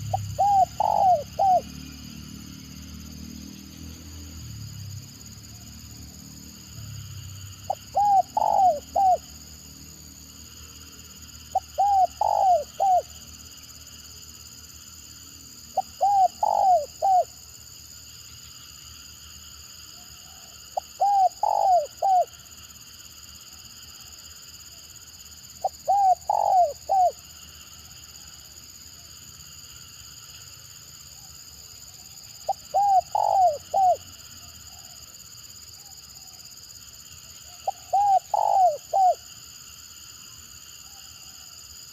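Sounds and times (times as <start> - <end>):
dove cooing: 0.0 - 1.8, 7.7 - 9.3, 11.5 - 13.2, 15.8 - 17.3, 20.2 - 22.4, 25.6 - 27.2, 32.5 - 34.1, 37.6 - 39.2.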